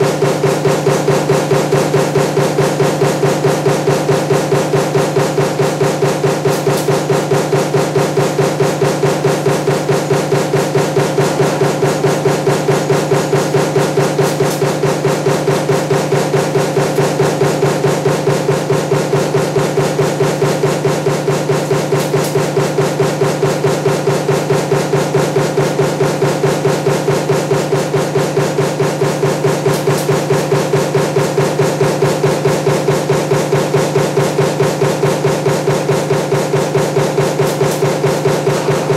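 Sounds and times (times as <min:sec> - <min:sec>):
punch press stamping: 0:00.0 - 0:38.9
steady machine hum: 0:00.0 - 0:38.9.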